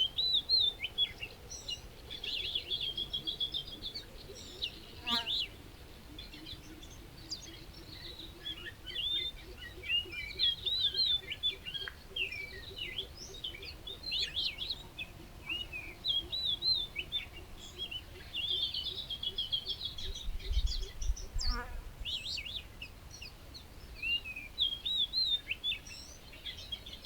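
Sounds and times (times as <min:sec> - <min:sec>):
small songbirds chirping: 0:00.0 - 0:27.0.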